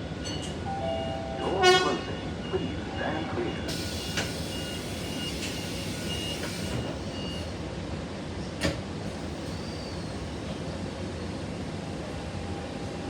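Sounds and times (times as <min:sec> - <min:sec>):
train rumble: 0:00.0 - 0:07.2.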